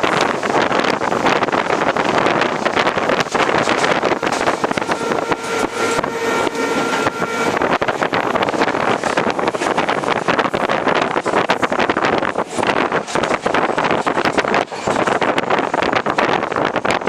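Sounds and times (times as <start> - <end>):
train wheels clattering: 0.0 - 17.0
wind buffeting microphone: 0.0 - 17.0
train horn: 2.6 - 9.9.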